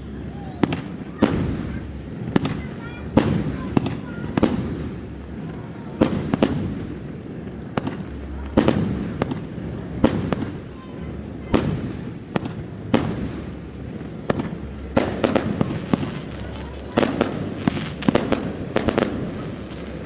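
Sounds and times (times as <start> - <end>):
fireworks bangs echoing: 0.0 - 20.0.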